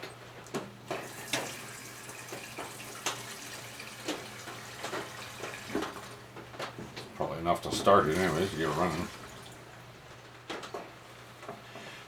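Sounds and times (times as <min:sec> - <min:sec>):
petrol pouring trickle: 0:01.0 - 0:06.2, 0:07.9 - 0:09.8.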